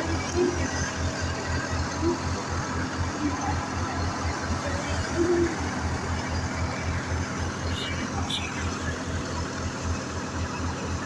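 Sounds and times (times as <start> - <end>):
tractor diesel engine throbbing: 0.0 - 11.0.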